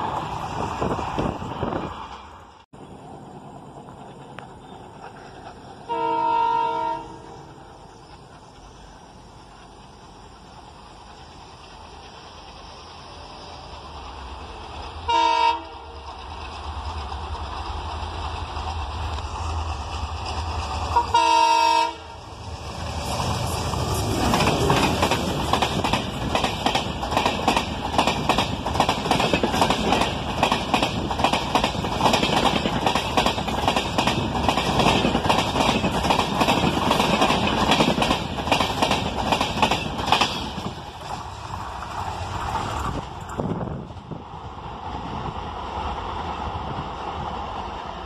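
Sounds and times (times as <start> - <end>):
train passing with wheel clatter: 0.0 - 48.0
locomotive horn blast: 5.9 - 7.4, 15.1 - 16.0, 21.0 - 22.2.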